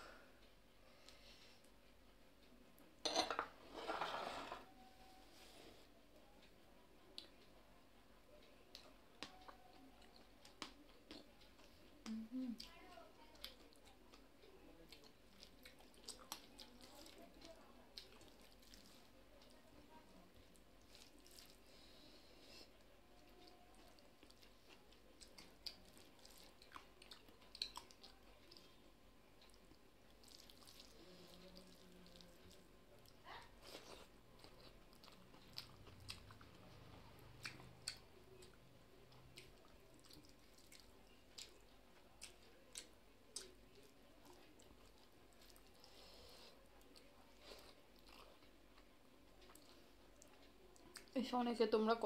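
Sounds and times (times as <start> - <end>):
person chewing: 14.8 - 19.5, 20.4 - 22.6, 23.2 - 28.7, 29.4 - 51.1.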